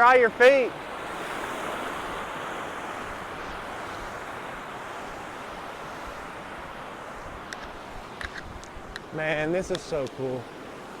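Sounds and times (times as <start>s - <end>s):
waterfall and river rushing: 0.0s - 11.0s
light clicks: 7.5s - 10.2s.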